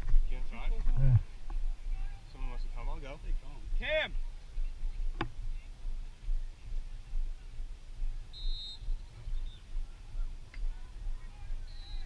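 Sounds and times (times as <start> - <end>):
low rumble on microphone: 0.0 - 12.0
high-pitched whistle blast: 8.3 - 8.9.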